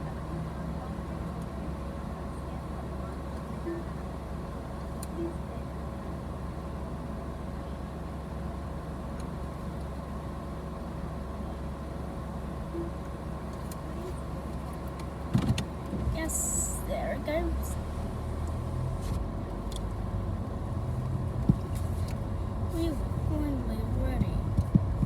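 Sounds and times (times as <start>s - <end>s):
car engine idling: 0.0s - 25.0s
faint steady hum: 9.0s - 25.0s.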